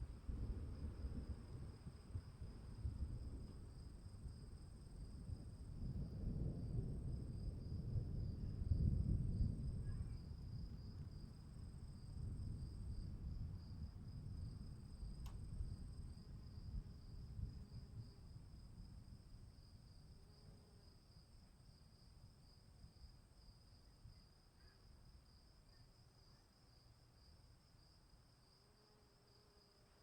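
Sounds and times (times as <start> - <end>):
faint low rumble: 0.0 - 20.7
crickets trilling: 7.0 - 30.0.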